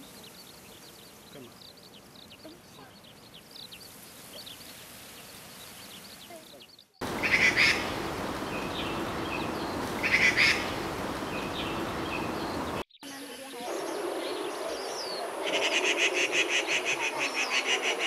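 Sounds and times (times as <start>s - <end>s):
small bird chirping: 0.0s - 15.7s
steady background hiss: 0.0s - 18.0s
magpie chattering calls: 7.1s - 8.0s, 10.0s - 10.8s.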